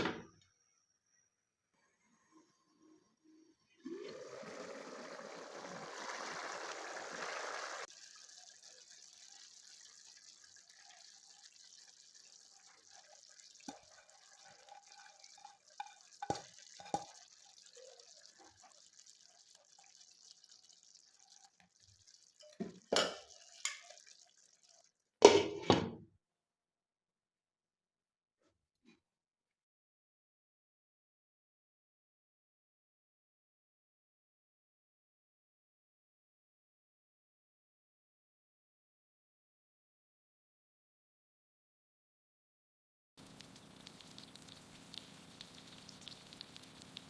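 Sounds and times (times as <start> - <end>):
liquid pouring into a pot: 3.8 - 25.6, 43.2 - 47.0.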